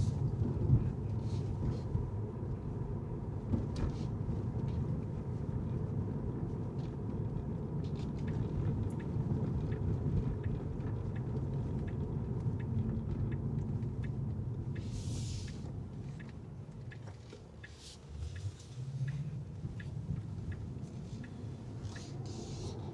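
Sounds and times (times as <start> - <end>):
car road and engine rumble: 0.0 - 22.9
light regular ticks: 7.9 - 22.9.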